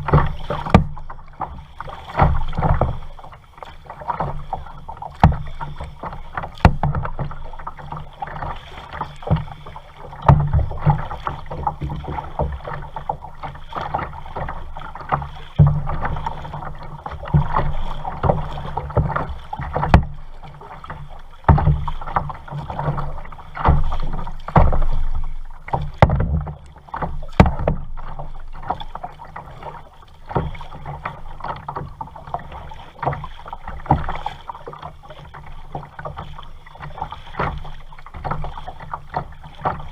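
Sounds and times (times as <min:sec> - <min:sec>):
thumps and sharp knocks: 0:00.0 - 0:01.0, 0:06.4 - 0:07.4, 0:25.7 - 0:27.9
paddle strokes splashing water: 0:00.0 - 0:39.9.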